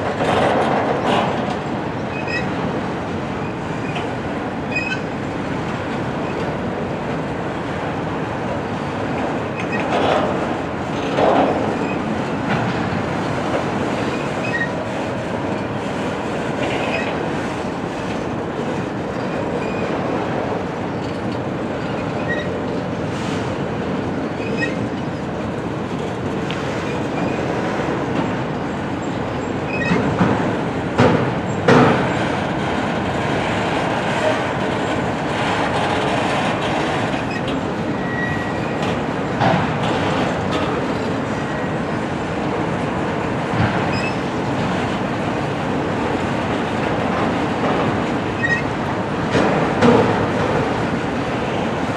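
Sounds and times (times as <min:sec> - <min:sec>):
freight train wheels rumbling: 0:00.0 - 0:51.9
wheel squeals: 0:02.1 - 0:02.5, 0:04.7 - 0:05.1, 0:14.1 - 0:14.8, 0:21.8 - 0:22.6, 0:24.4 - 0:24.9, 0:29.7 - 0:30.1, 0:37.1 - 0:38.9, 0:43.9 - 0:44.2, 0:48.4 - 0:48.7.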